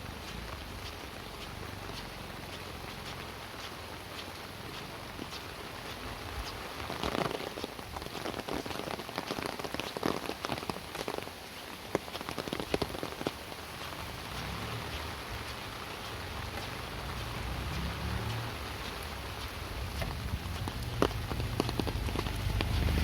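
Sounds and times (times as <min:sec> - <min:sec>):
rain falling: 0:00.0 - 0:23.0
low rumble: 0:19.6 - 0:23.0.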